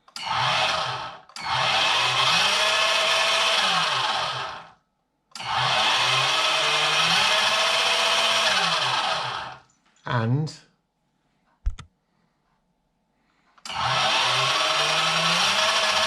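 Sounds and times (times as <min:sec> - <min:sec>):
toy truck electric motor whining: 0:00.0 - 0:09.6, 0:13.6 - 0:16.0.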